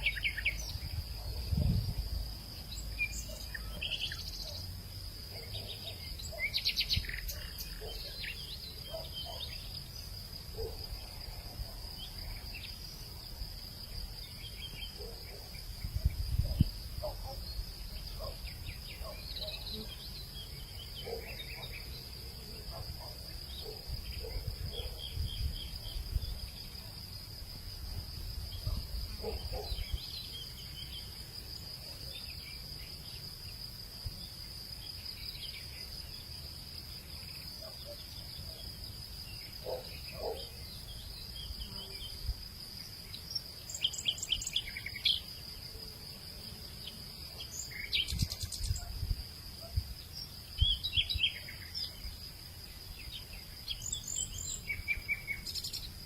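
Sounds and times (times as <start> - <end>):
bird chirps: 0.0 - 0.8
insects trilling: 0.0 - 56.0.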